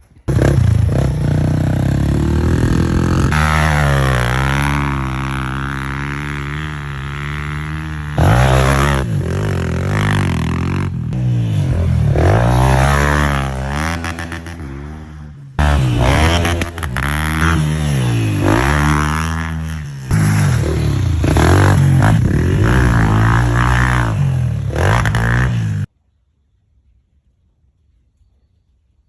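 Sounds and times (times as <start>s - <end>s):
dirt bike engine revving: 0.3s - 25.9s.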